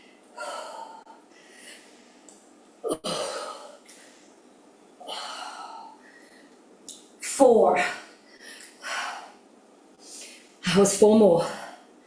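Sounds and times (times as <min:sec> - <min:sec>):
woman breathing hard: 0:00.0 - 0:02.2, 0:05.0 - 0:06.6, 0:08.2 - 0:09.4.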